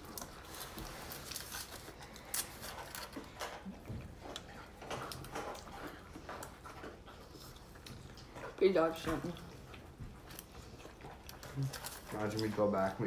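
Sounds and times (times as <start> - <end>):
rustling: 0.0 - 3.7
chewing and mouth noises: 0.0 - 13.0.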